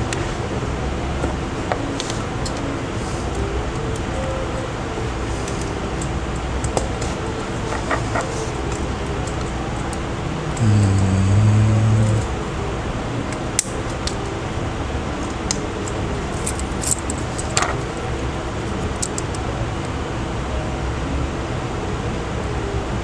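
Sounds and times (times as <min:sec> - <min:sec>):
fan-like hiss: 0:00.0 - 0:23.0
brief low hum: 0:10.6 - 0:12.6.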